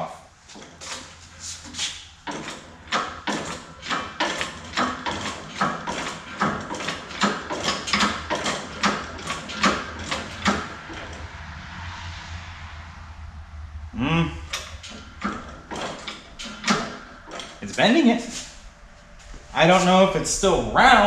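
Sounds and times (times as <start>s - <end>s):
pipe bender click and creak: 0.5s - 11.3s, 14.5s - 17.8s.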